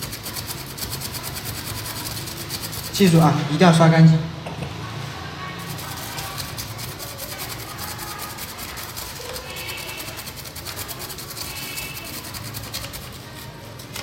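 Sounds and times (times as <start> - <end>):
brush scrubbing circuit board: 0.0 - 3.3, 5.5 - 14.0.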